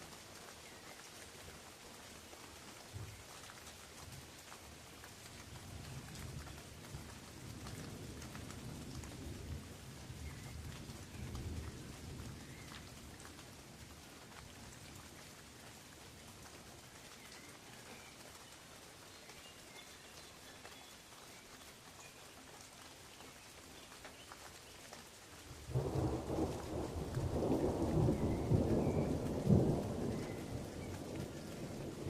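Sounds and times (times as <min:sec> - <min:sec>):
rain falling on leaves: 0:00.0 - 0:32.0
low rolling thunder: 0:25.7 - 0:32.0.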